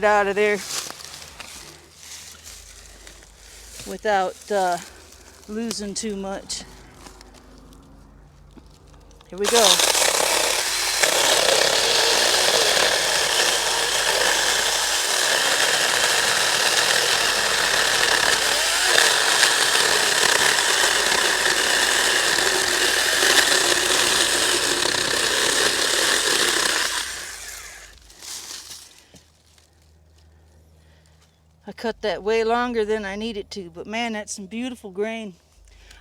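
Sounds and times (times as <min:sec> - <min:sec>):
chainsaw cutting wood: 0:09.3 - 0:29.2.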